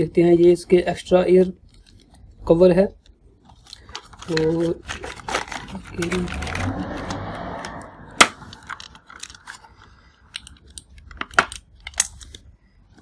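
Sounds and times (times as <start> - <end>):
box rustling: 3.5 - 6.7.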